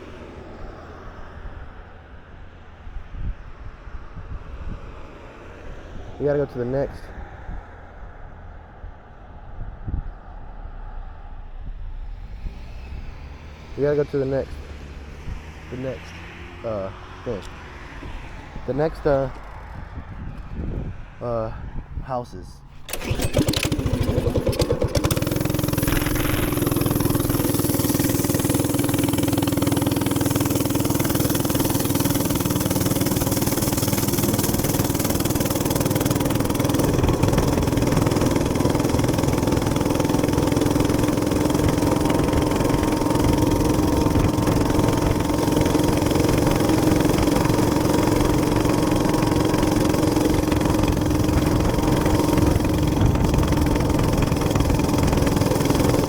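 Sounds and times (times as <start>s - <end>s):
wind and road noise: 0.0s - 56.0s
minibike engine running: 18.2s - 20.5s, 22.9s - 56.0s.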